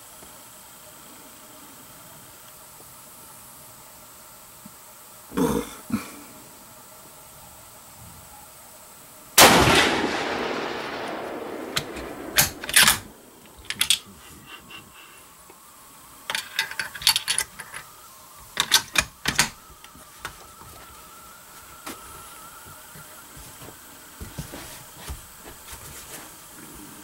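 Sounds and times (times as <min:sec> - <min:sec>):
rifle shot: 0:09.4 - 0:14.0.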